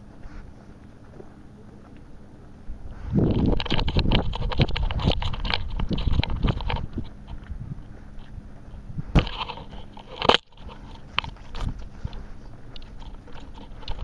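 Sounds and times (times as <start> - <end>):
close crackling and crunching: 2.9 - 14.0.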